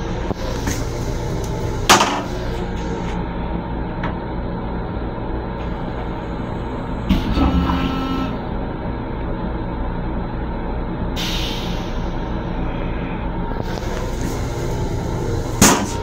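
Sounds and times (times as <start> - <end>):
train low rumble: 0.0 - 16.0
air hiss: 11.2 - 12.4.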